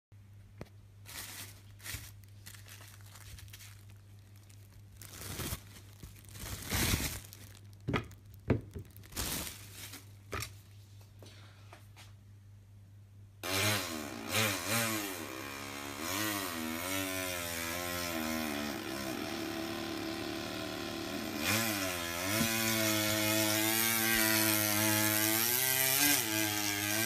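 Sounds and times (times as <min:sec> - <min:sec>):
plastic wrapping crinkling: 0:01.0 - 0:10.8.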